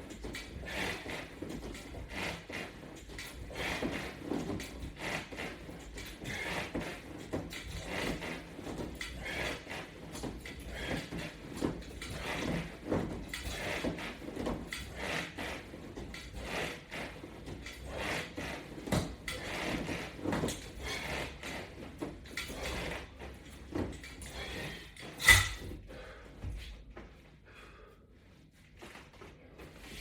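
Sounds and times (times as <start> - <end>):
exercise band clicks and knocks: 0.0 - 25.8
person breathing hard: 25.8 - 26.7, 27.4 - 28.3.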